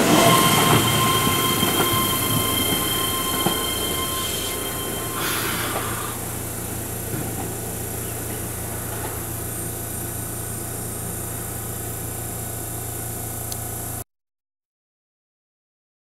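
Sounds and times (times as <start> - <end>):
electric train hum and hiss: 0.0 - 14.0.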